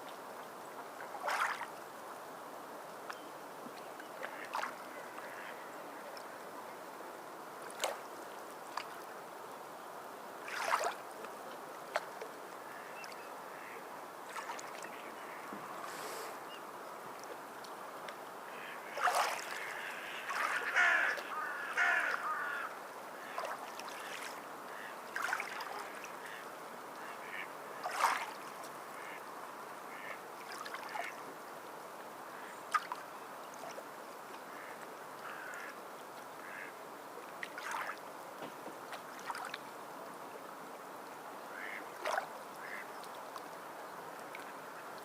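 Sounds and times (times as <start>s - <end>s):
water birds calling: 0.4s - 2.0s, 2.9s - 40.1s, 41.3s - 45.0s
sea water washing: 1.2s - 1.8s, 10.4s - 11.1s, 18.5s - 26.4s, 27.8s - 28.6s.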